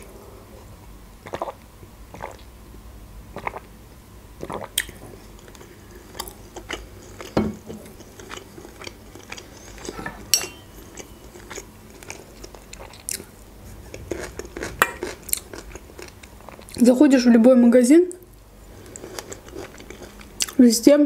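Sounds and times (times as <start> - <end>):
chewing and crunching: 4.4 - 16.8, 18.8 - 20.6.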